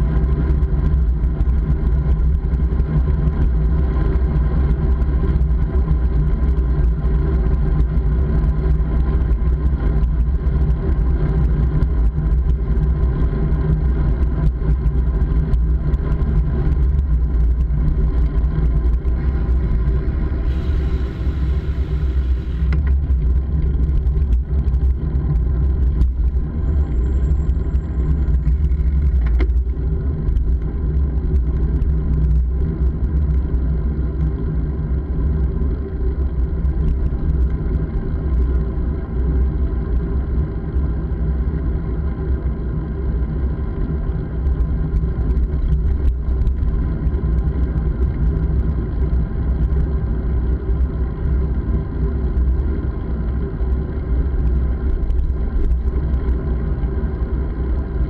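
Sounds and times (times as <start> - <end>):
constant hum: 0.0 - 58.0.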